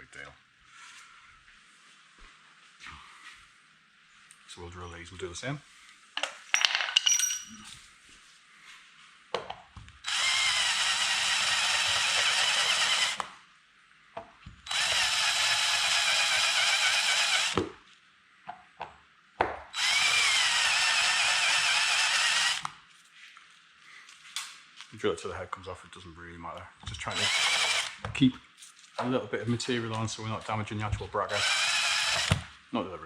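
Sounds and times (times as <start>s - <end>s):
power drill grinding rivets: 10.0s - 13.3s, 14.6s - 17.6s, 19.8s - 22.8s, 26.8s - 28.1s, 31.2s - 32.5s.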